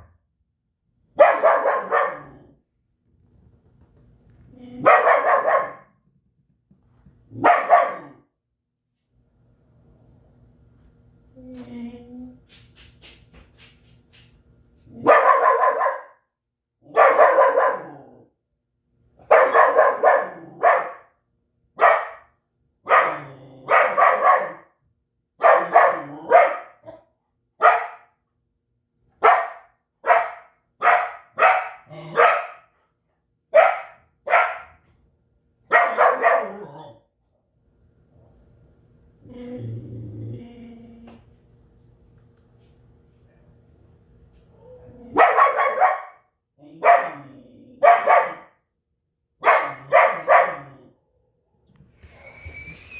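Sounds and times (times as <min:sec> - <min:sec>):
dog barking: 0:01.2 - 0:02.5, 0:04.8 - 0:05.9, 0:07.4 - 0:08.3, 0:15.0 - 0:16.2, 0:16.8 - 0:18.1, 0:19.2 - 0:21.1, 0:21.8 - 0:24.8, 0:25.4 - 0:28.2, 0:29.2 - 0:32.7, 0:33.5 - 0:34.8, 0:35.7 - 0:36.8, 0:44.6 - 0:48.6, 0:49.4 - 0:50.8.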